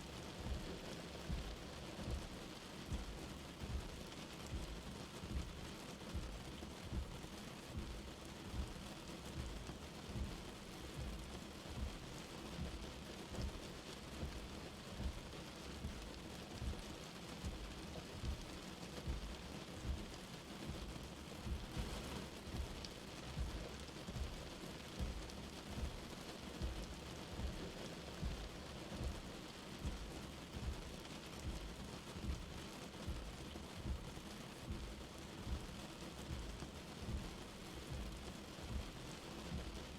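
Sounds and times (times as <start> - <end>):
light rain falling: 0.0 - 39.9
soft low thuds: 1.3 - 13.6, 26.6 - 39.9.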